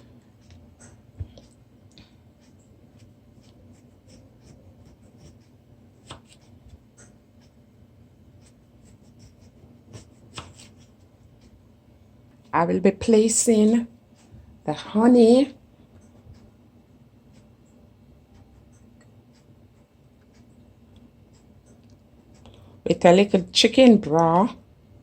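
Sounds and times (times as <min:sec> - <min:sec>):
knife slicing lemon on board: 0:03.0 - 0:06.5, 0:09.1 - 0:10.9.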